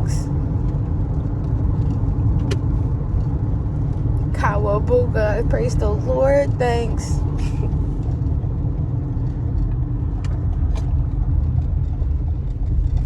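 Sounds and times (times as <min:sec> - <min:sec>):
tyres rumbling on rough road: 0:00.0 - 0:13.0.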